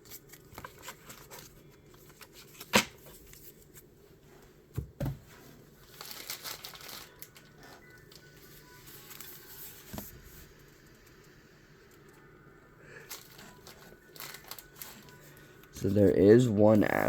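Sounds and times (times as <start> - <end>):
plastic and foil crinkling: 0.0 - 3.7, 5.7 - 10.4, 12.9 - 17.0.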